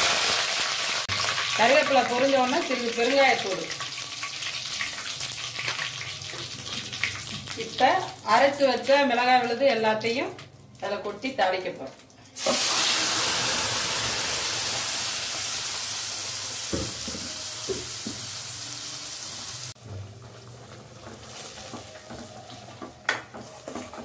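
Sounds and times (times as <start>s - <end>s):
paste sizzling in hot oil: 12.4s - 19.8s.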